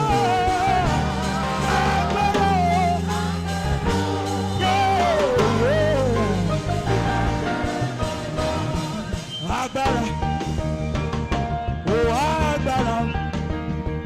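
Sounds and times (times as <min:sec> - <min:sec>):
person singing: 0:00.0 - 0:03.3, 0:04.4 - 0:06.8
saxophone melody: 0:00.0 - 0:09.3
sustained chords and bass: 0:00.0 - 0:14.0.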